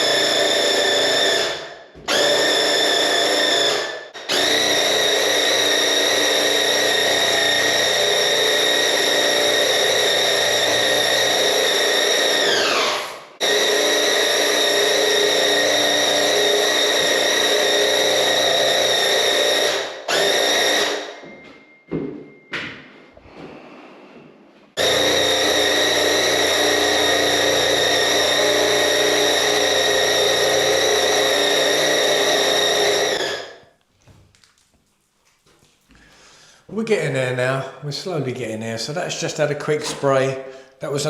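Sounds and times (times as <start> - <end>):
paint sprayer motor whining: 0.0 - 21.3, 24.8 - 33.6.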